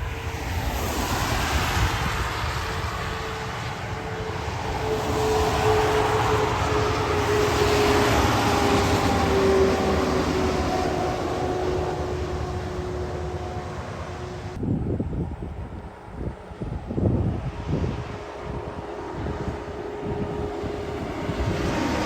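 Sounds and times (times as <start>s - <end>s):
tyres hissing on wet road: 0.0s - 14.6s.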